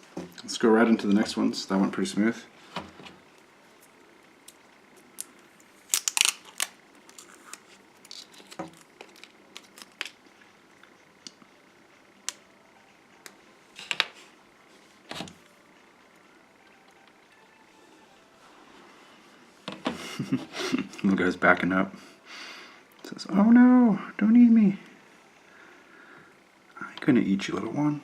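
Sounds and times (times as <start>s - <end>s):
plastic packaging being handled: 5.3s - 10.2s.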